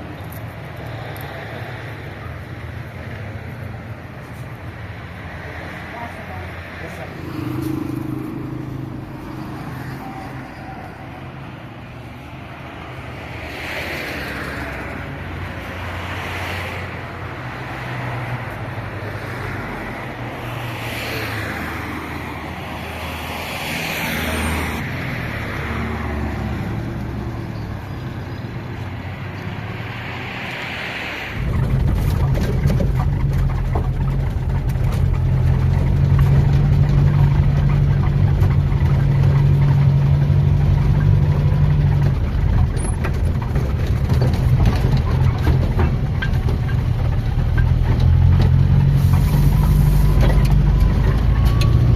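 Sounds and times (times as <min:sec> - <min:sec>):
engine running with low hum: 0:31.4 - 0:51.9.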